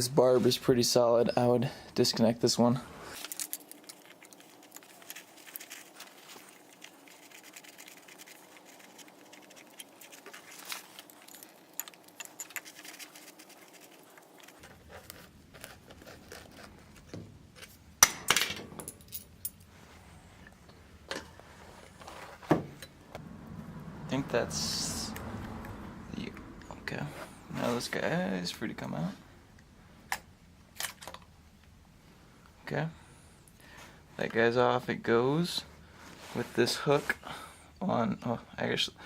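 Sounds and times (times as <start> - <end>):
clicks and clinks of parts: 3.2 - 6.7, 9.0 - 14.7, 30.1 - 31.3.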